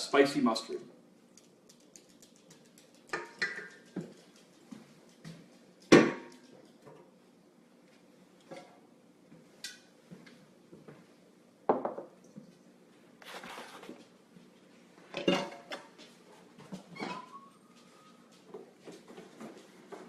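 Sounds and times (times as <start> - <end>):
dishes and utensils clattering: 3.2 - 4.2, 15.1 - 16.0.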